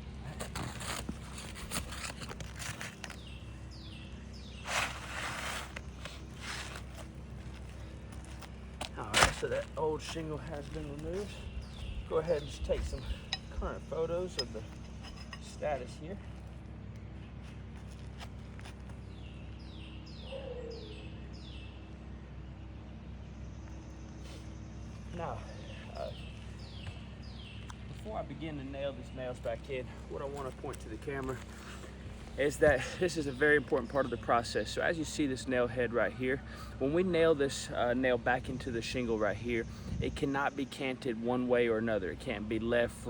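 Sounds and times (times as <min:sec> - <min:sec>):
low background rumble: 0:00.0 - 0:43.0
roofing shingle scraping: 0:00.2 - 0:16.5, 0:30.2 - 0:34.3.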